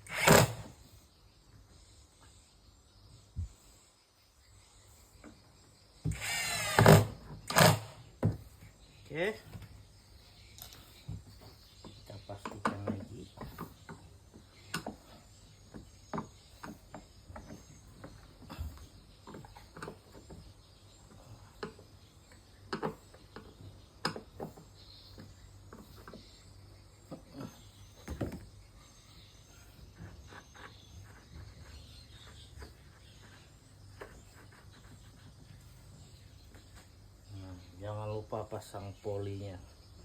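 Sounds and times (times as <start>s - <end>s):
hand tools and metal parts knocking: 10.5s - 26.2s.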